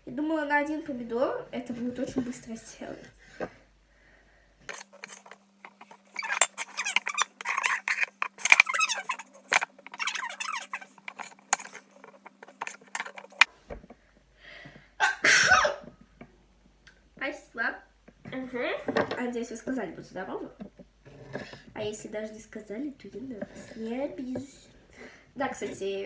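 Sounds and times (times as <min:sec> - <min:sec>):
girl sneezing: 0:15.0 - 0:15.8.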